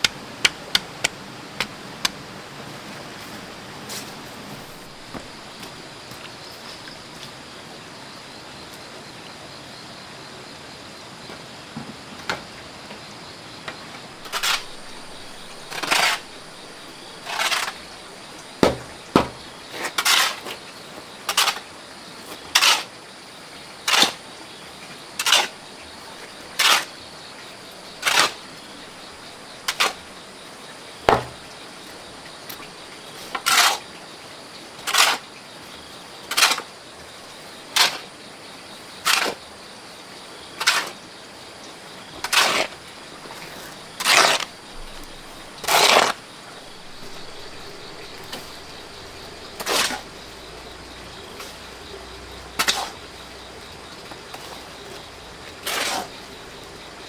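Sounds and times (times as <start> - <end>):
hand tool working wood: 0.0 - 2.2, 3.3 - 5.9, 14.2 - 20.4, 31.1 - 31.6, 42.2 - 55.0, 55.6 - 56.3
sharp knocks: 4.6 - 5.8, 14.2 - 19.6, 31.1 - 31.6.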